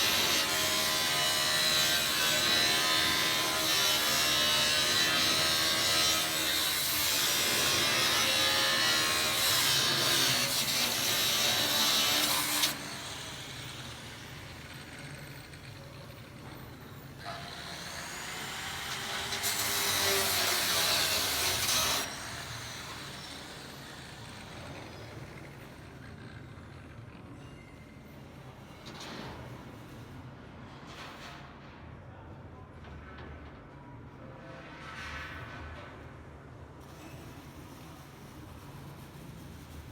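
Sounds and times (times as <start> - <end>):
power tool cutting steel: 0.0 - 16.6, 17.2 - 26.1.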